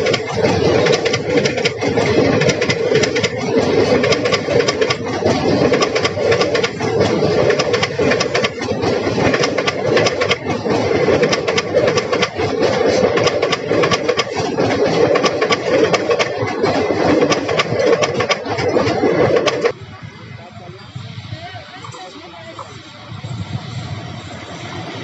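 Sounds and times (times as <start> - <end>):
wheels clattering on rails: 0.0 - 19.8
train coaches rumbling past: 0.0 - 25.0.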